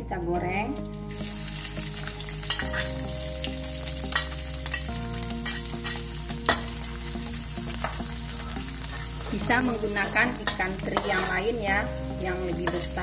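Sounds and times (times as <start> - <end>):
fish sizzling in hot oil: 0.8 - 13.0
metal spatula scraping a wok: 7.8 - 11.6.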